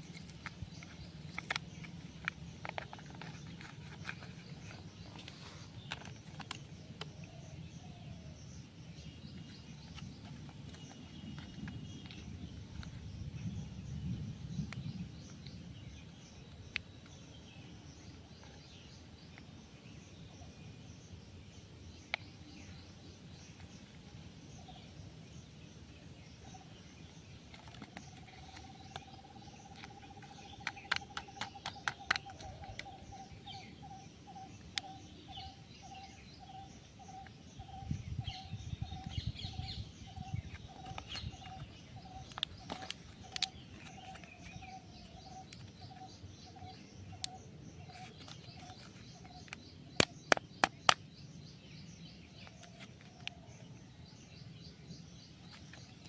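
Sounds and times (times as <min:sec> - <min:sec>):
higher bird chirping: 0:17.2 - 0:56.0
sharp clicks: 0:29.7 - 0:33.2, 0:48.2 - 0:51.1.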